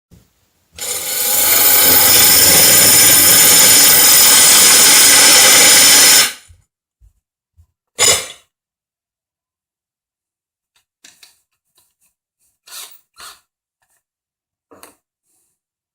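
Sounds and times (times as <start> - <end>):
power drill grinding into tile: 0.8 - 6.5.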